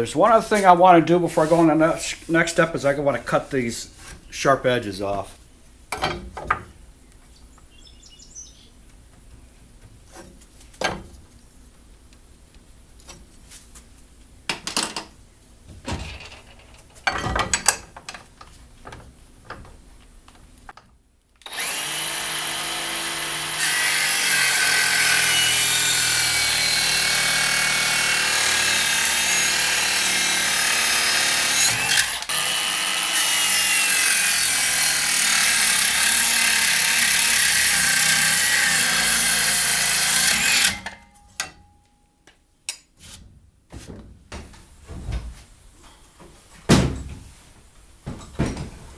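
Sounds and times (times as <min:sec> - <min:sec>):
power tool cutting: 0:21.4 - 0:41.0.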